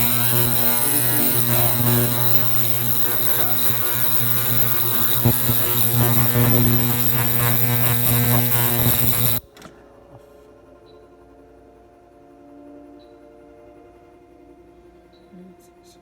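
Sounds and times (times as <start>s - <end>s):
ultrasonic transducers buzzing: 0.0s - 9.5s.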